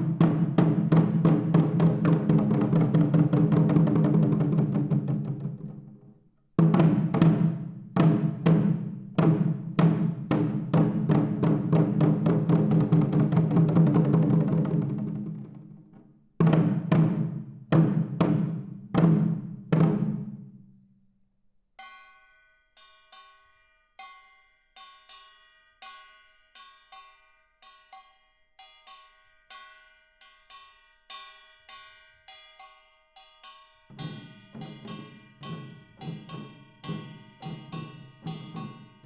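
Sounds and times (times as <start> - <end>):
fast drum roll: 0.0 - 5.8, 6.6 - 15.6.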